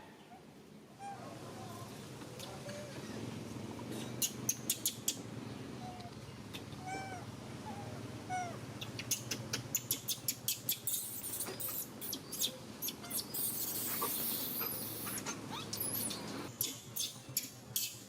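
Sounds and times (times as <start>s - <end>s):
baby monkey whimpering cries: 6.8s - 8.6s.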